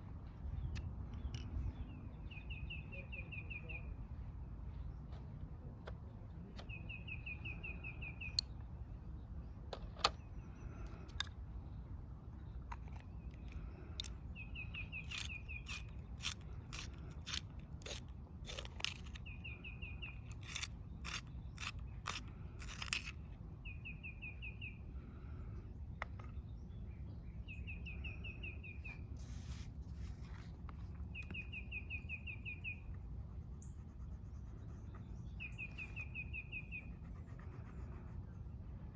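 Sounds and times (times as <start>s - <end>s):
low outdoor rumble: 0.0s - 38.9s
coloring strokes on paper: 29.2s - 30.6s, 32.9s - 36.0s, 36.6s - 38.9s.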